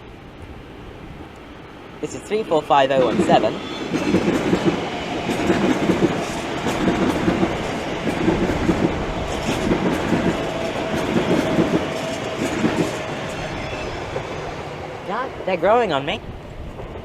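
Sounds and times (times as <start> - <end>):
train wheels clattering over joints: 2.9 - 14.7.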